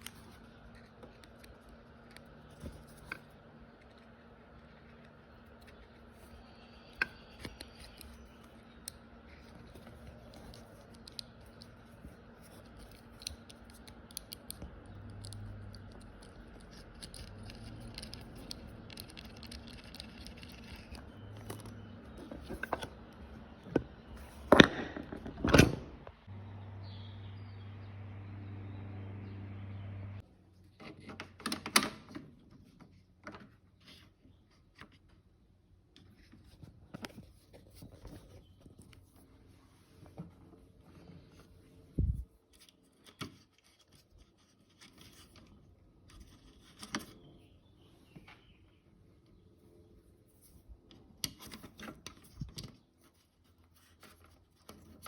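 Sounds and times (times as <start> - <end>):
coffee maker low hum: 0.0 - 30.3.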